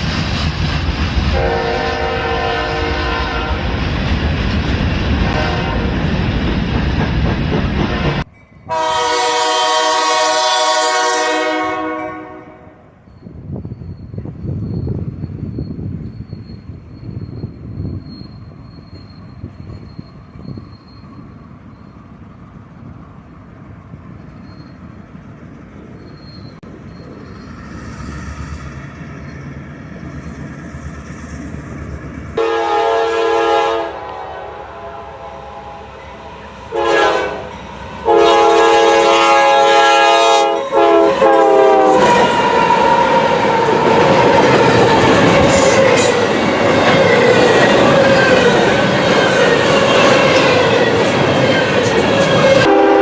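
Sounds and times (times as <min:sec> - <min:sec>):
train rumbling: 0:00.0 - 0:53.0
locomotive air horn blasts: 0:01.3 - 0:03.7, 0:05.3 - 0:06.0, 0:07.9 - 0:12.9, 0:32.4 - 0:44.8, 0:52.4 - 0:53.0.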